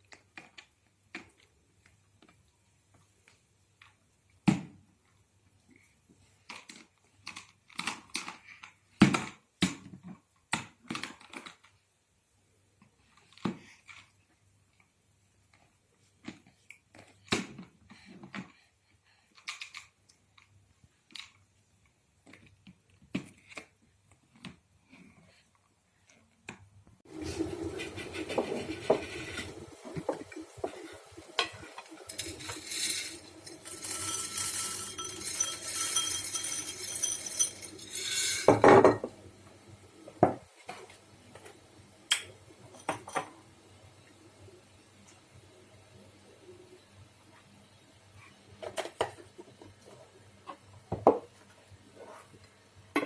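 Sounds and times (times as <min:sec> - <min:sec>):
dishes and cutlery clinking: 0:31.4 - 0:39.1.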